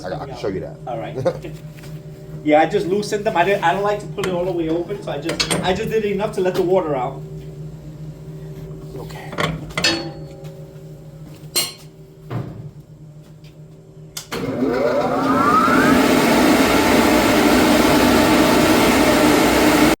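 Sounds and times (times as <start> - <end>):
low steady hum: 0.0 - 14.4
electric blower motor whining: 14.3 - 20.0.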